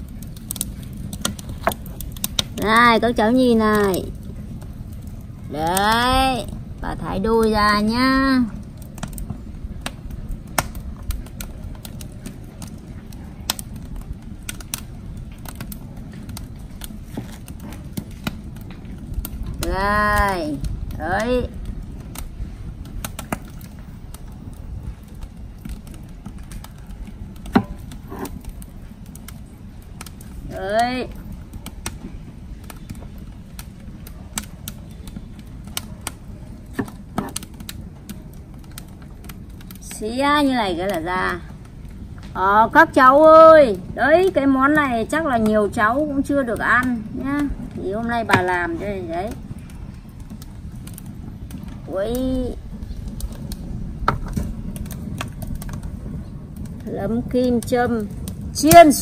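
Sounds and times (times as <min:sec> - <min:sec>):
low rumble: 0:46.6 - 0:59.0.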